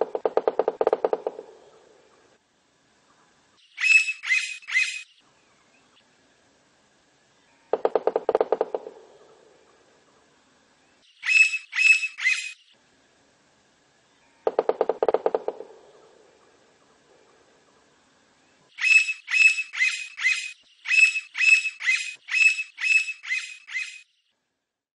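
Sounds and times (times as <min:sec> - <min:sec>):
woodpecker calling: 0:00.0 - 0:02.3, 0:03.7 - 0:05.2, 0:07.7 - 0:09.9, 0:11.2 - 0:12.7, 0:14.4 - 0:17.5, 0:18.7 - 0:24.1.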